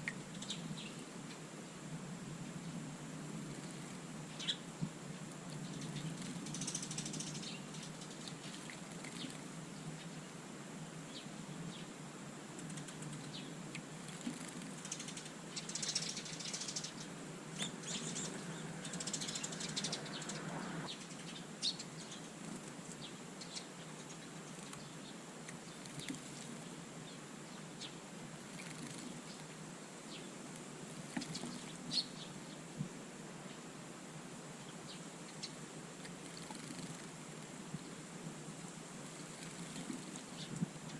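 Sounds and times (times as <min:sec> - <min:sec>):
wings fluttering and splashing: 0:05.7 - 0:09.6, 0:12.6 - 0:20.5, 0:24.4 - 0:26.7, 0:28.4 - 0:29.6, 0:30.9 - 0:31.9, 0:36.0 - 0:37.4, 0:39.0 - 0:40.8.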